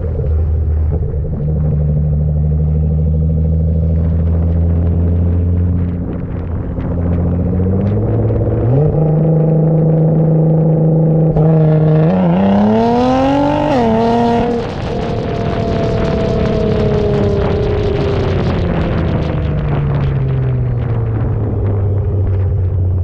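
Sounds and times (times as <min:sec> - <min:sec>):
car engine and exhaust: 0:00.0 - 0:23.0.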